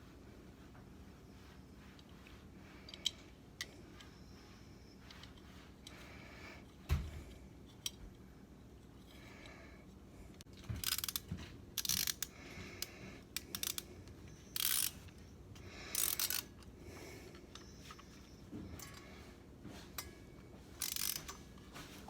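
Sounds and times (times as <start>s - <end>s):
ratchet wrench clicking: 10.8s - 13.9s, 14.5s - 15.1s, 15.9s - 16.6s, 20.8s - 21.4s.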